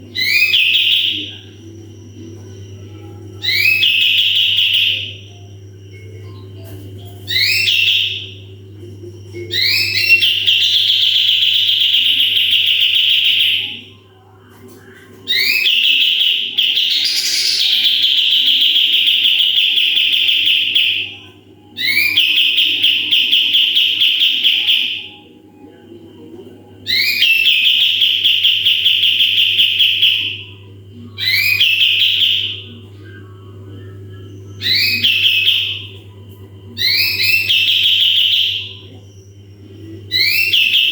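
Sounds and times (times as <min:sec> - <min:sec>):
steady low hum: 0:00.0 - 0:27.2, 0:27.8 - 0:40.9
songbird trilling song: 0:09.4 - 0:13.9, 0:15.3 - 0:21.2, 0:34.6 - 0:35.9, 0:36.8 - 0:39.3.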